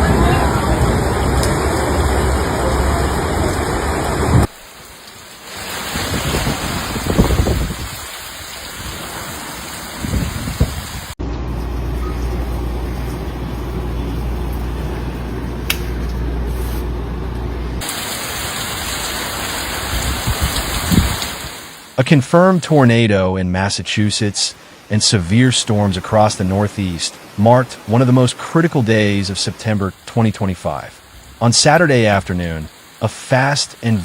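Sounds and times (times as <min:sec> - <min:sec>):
rain: 0:00.0 - 0:34.0
wind noise: 0:05.9 - 0:09.2, 0:09.9 - 0:11.2, 0:19.8 - 0:21.5
steady low rumble: 0:11.2 - 0:17.8.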